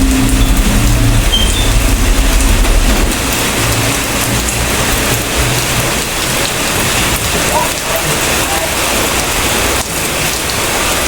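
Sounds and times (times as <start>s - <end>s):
low rumble: 0.0s - 6.3s
steady rain falling: 0.0s - 11.0s.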